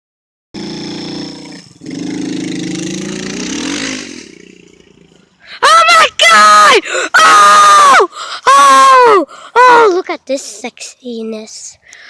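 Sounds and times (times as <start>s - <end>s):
dirt bike engine revving: 0.6s - 5.4s
loud shout: 5.6s - 10.0s.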